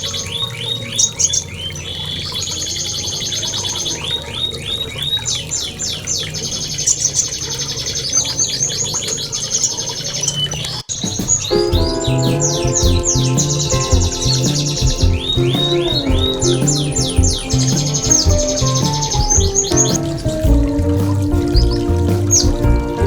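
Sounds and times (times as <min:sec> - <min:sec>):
songbird singing: 0:10.9 - 0:23.0.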